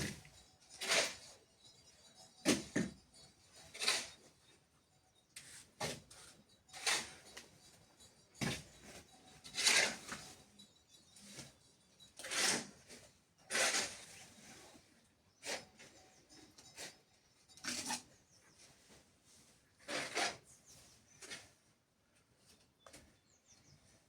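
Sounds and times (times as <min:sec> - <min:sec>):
hand tool scraping wet mortar: 0:00.0 - 0:01.3, 0:03.6 - 0:04.2, 0:05.5 - 0:07.4, 0:08.4 - 0:10.3, 0:12.2 - 0:14.8, 0:19.8 - 0:20.6.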